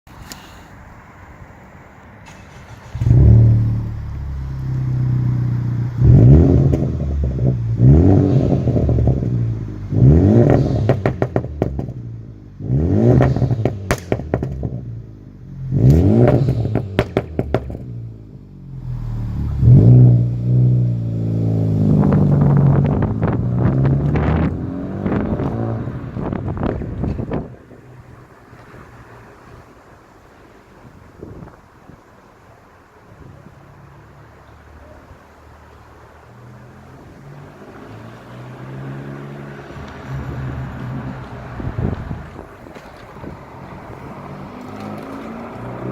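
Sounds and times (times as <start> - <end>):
exhaust crackles and pops: 2.3 - 15.0, 15.7 - 29.7, 41.2 - 45.9
car engine revving: 2.3 - 29.4, 36.2 - 45.9.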